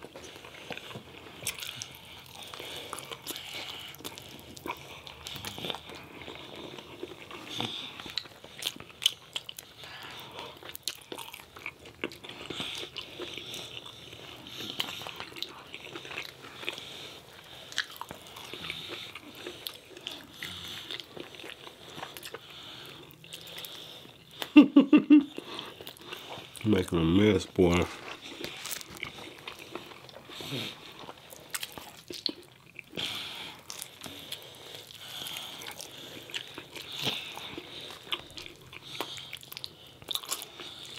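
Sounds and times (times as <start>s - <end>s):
biting and chewing food: 0.0s - 24.6s, 25.3s - 40.9s
person speaking: 26.6s - 28.0s.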